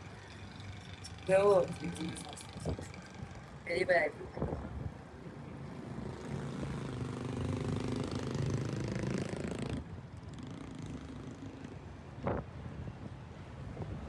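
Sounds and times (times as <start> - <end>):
vehicle engine running: 0.0 - 4.1.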